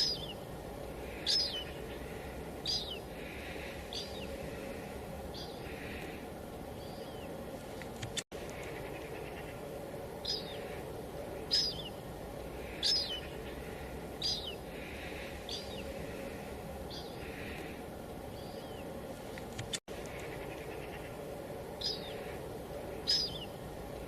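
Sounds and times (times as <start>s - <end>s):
high downward bird chirp: 0.0s - 0.4s, 1.1s - 3.1s, 11.4s - 12.0s, 12.6s - 14.6s, 23.0s - 23.6s.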